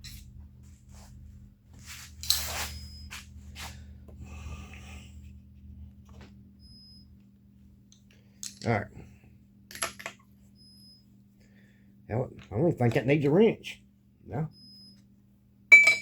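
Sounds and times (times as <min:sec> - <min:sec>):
steady low hum: 0:00.0 - 0:16.0
tools clicking and scraping: 0:02.2 - 0:02.8, 0:07.9 - 0:08.7.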